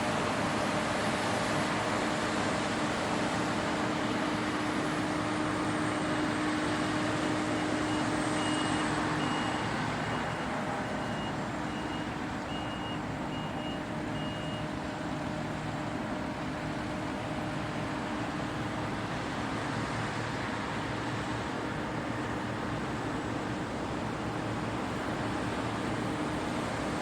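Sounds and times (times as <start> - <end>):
combine harvester rumbling: 0.0 - 27.0
backup alarm beeping: 7.9 - 14.7.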